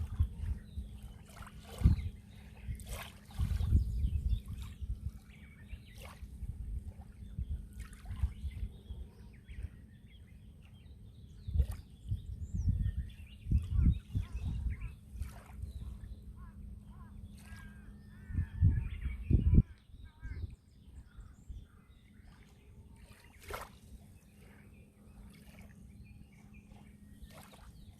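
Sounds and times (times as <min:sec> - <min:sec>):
sea waves lapping and splashing: 0:00.0 - 0:09.9, 0:13.6 - 0:18.0, 0:21.9 - 0:27.9.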